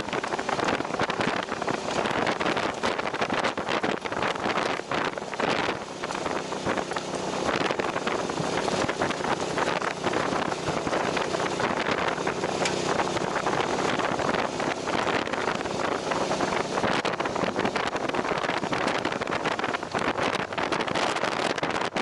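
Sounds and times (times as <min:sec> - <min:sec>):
low motorcycle engine drone: 0:00.0 - 0:22.0
wind buffeting microphone: 0:00.0 - 0:22.0.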